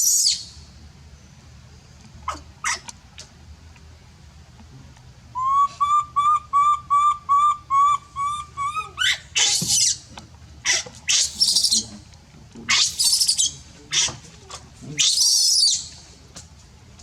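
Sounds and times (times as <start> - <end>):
baby monkey piping cries: 5.4 - 11.9, 12.7 - 14.2, 15.0 - 15.9
monkey shrill screeches: 8.6 - 10.0, 10.7 - 11.8, 12.7 - 14.1, 15.0 - 15.9.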